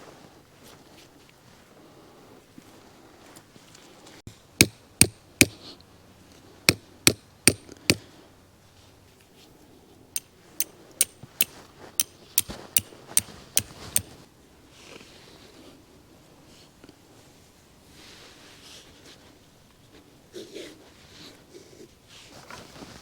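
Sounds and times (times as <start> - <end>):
hammer striking metal stakes: 4.6 - 5.6, 6.7 - 8.0, 10.2 - 14.2.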